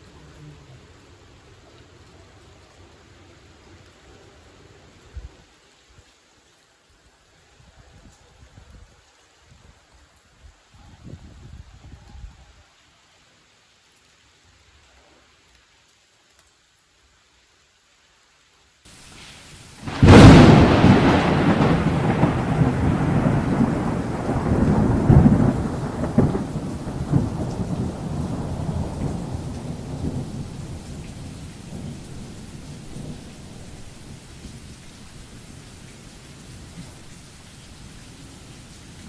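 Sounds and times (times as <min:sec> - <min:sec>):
rain hissing: 0:00.0 - 0:39.0
thunder rumbling: 0:19.0 - 0:37.2.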